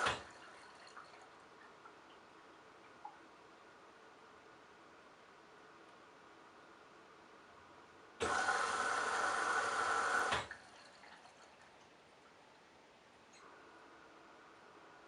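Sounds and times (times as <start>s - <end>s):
water rushing into washing machine: 0.0s - 1.4s, 8.2s - 11.8s.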